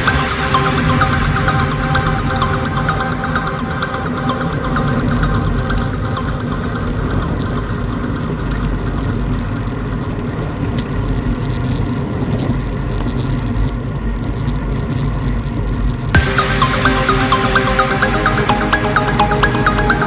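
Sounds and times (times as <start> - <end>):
loud electronic music: 0.0 - 9.1, 16.2 - 20.0
faint music: 16.2 - 20.0.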